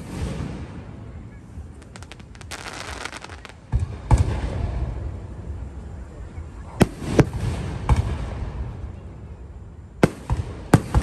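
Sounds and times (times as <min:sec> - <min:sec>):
deep firework booms: 0:00.0 - 0:01.0, 0:01.8 - 0:05.2, 0:06.8 - 0:08.8, 0:10.0 - 0:11.0
fireworks crackling: 0:00.0 - 0:05.2, 0:10.0 - 0:11.0.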